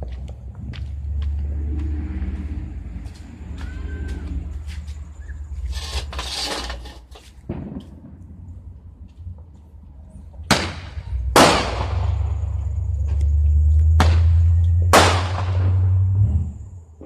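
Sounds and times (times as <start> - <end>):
steady low rumble: 0.0 - 6.2, 7.4 - 17.0
fireworks bangs: 7.4 - 8.7, 10.5 - 12.6, 13.9 - 15.9.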